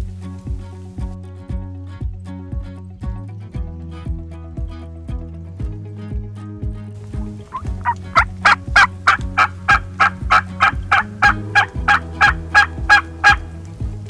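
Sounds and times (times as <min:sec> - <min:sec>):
background music with beat: 0:00.0 - 0:14.0
wild turkey calling: 0:07.0 - 0:13.8.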